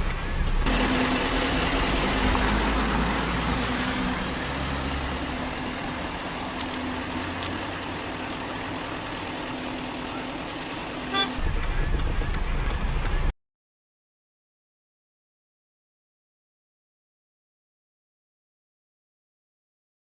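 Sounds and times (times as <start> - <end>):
vehicle engine running: 0.0 - 13.3.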